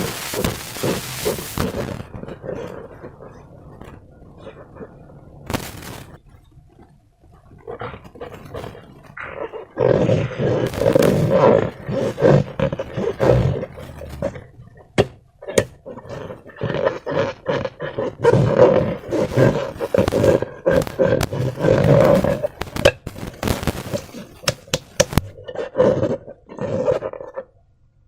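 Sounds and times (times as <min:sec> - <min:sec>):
slime squishing: 0:00.0 - 0:27.6
sharp clicks: 0:19.2 - 0:25.3.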